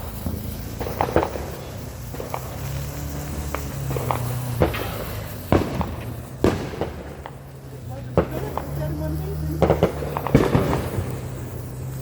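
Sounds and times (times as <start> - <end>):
sharp pops and clicks: 0.0 - 7.6.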